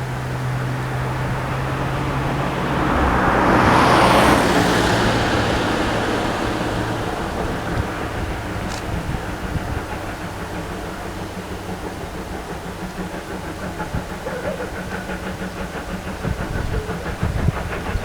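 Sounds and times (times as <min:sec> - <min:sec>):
vehicle passing by: 0:00.0 - 0:09.8.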